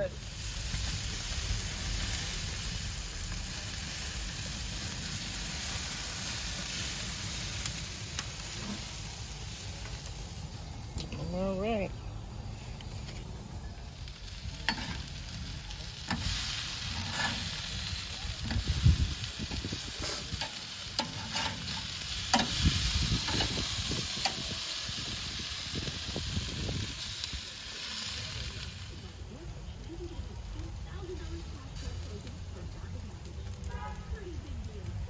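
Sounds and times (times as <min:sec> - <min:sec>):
meat sizzling on a grill: 0:00.0 - 0:35.0
sharp clicks and scrapes: 0:20.0 - 0:22.6.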